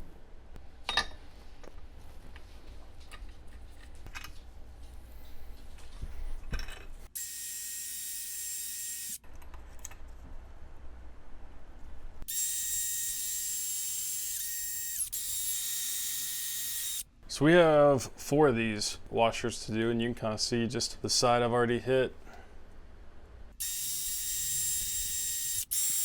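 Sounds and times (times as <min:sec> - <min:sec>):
power wire wheel whirring: 0:23.6 - 0:26.0.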